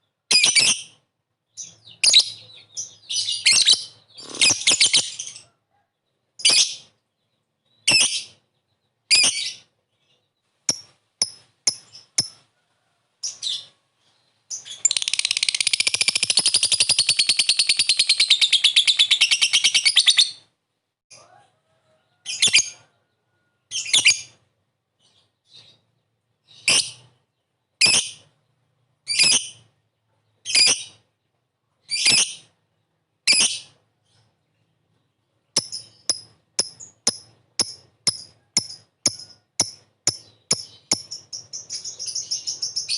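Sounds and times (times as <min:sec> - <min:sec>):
lovebird pulsing chatter: 0:04.2 - 0:05.2, 0:10.7 - 0:12.4, 0:14.8 - 0:18.2, 0:35.6 - 0:42.9.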